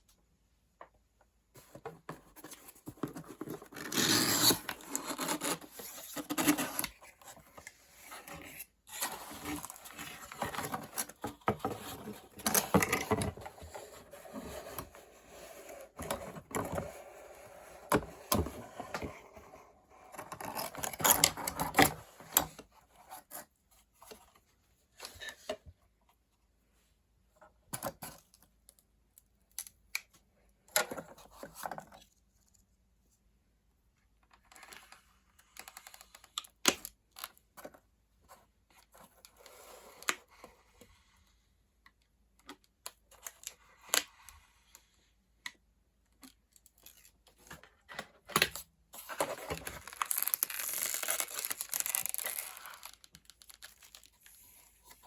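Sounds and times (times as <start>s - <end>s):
cardboard scraping and rubbing: 1.7s - 7.3s.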